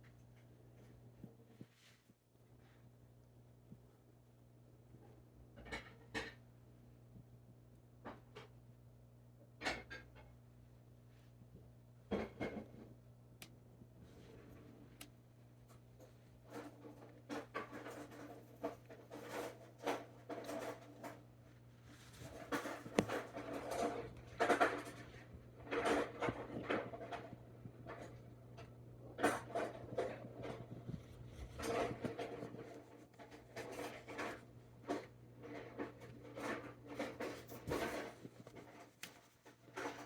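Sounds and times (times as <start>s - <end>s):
animals crunching and chewing food: 13.8s - 40.0s.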